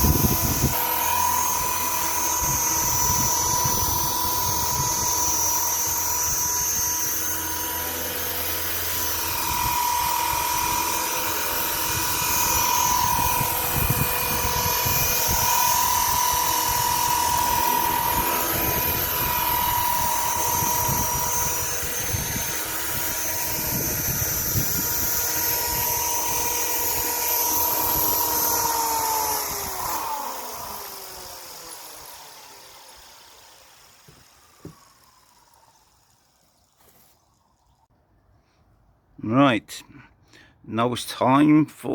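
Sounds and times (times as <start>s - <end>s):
wind buffeting microphone: 0.0s - 0.8s, 2.4s - 6.9s, 11.8s - 29.9s
rc helicopter motor whine: 0.0s - 37.9s.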